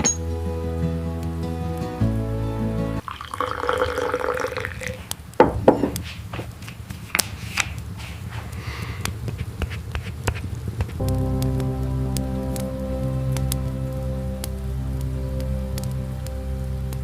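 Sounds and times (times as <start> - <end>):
background music: 0.0 - 3.4, 11.0 - 17.0
water pouring: 3.0 - 5.3
loud knocks: 5.4 - 6.0.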